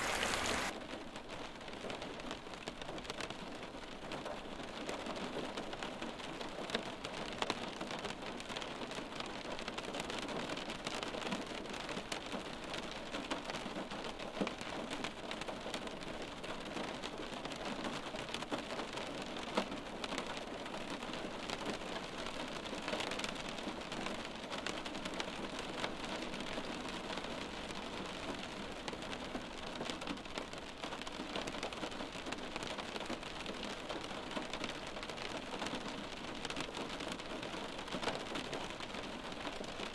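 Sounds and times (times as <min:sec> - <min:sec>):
rain on a hard surface: 0:00.0 - 0:39.9.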